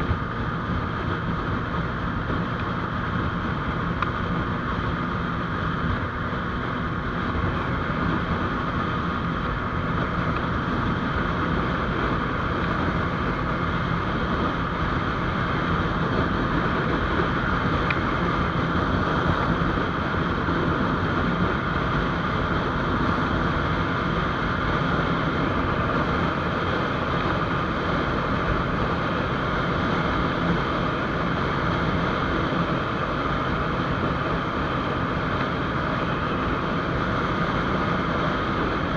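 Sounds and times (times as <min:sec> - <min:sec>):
motorcycle engine running: 0:00.0 - 0:38.9
wind rushing over microphone: 0:00.0 - 0:38.9.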